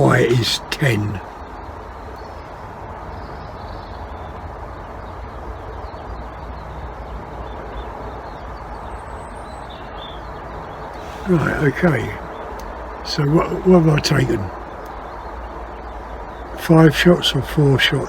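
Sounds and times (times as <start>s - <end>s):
background rumble and hiss: 0.0s - 1.2s, 11.0s - 15.0s, 15.6s - 18.0s.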